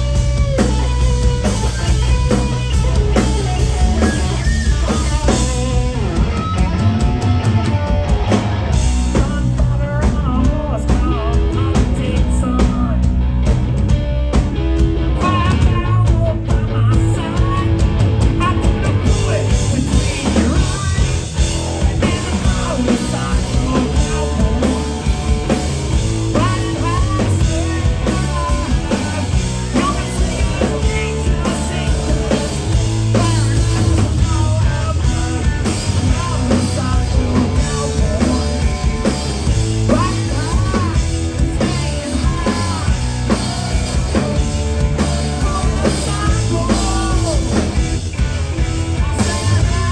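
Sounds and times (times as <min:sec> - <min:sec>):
bass guitar: 0:00.0 - 0:49.9
drum kit: 0:00.0 - 0:49.9
electric guitars: 0:00.0 - 0:49.9.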